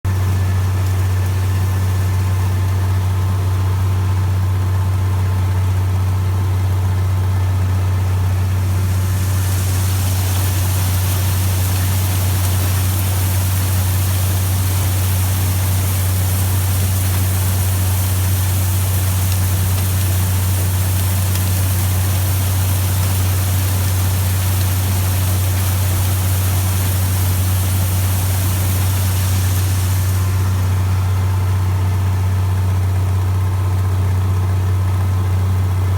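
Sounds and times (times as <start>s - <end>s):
diesel tractor engine running: 0.0s - 35.9s
steady high hiss: 7.6s - 33.1s.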